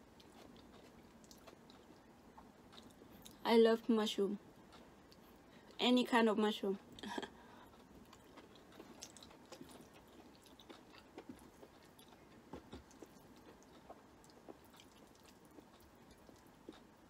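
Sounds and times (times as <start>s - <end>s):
chewing noodles: 0.0s - 3.4s, 7.5s - 17.0s.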